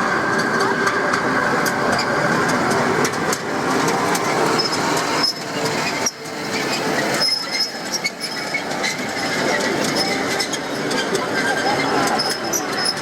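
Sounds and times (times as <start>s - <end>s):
tram wheels running on rails: 0.0s - 13.0s
high squeals: 4.5s - 13.0s.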